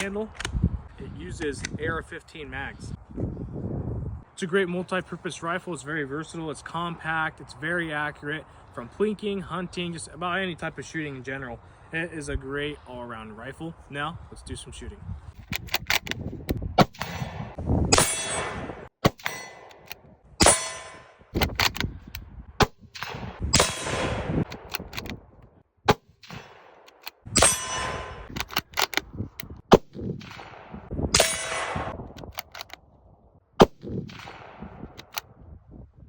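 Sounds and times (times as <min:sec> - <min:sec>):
rifle bolt clicks: 0:00.0 - 0:00.6, 0:15.4 - 0:17.2, 0:19.1 - 0:20.1, 0:21.4 - 0:22.2, 0:24.4 - 0:25.2, 0:26.2 - 0:27.6, 0:28.3 - 0:30.4, 0:32.1 - 0:32.8, 0:34.1 - 0:35.3
rifle shots: 0:16.8 - 0:21.8, 0:22.6 - 0:25.2, 0:25.9 - 0:29.0, 0:29.7 - 0:32.6, 0:33.6 - 0:35.2
ringing metallic clang: 0:20.4 - 0:21.1, 0:27.4 - 0:28.2.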